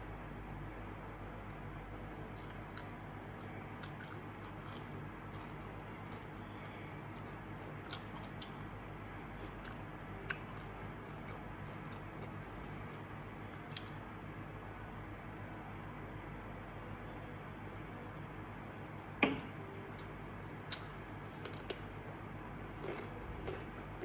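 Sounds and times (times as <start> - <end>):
steady low hum: 0.0 - 24.0
person chewing and crunching food: 2.2 - 14.0, 19.8 - 24.0.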